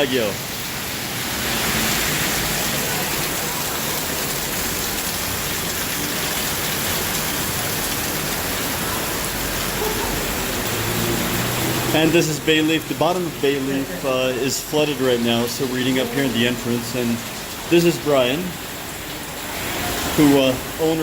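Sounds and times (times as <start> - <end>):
rain falling steadily: 0.0 - 21.0.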